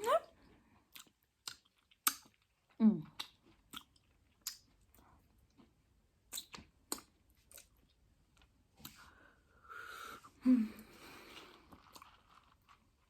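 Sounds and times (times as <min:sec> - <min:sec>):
person chewing chips: 0:00.8 - 0:09.1, 0:10.8 - 0:13.0
wet mouth clicks and smacks: 0:00.9 - 0:02.5, 0:03.2 - 0:04.7, 0:06.3 - 0:07.8.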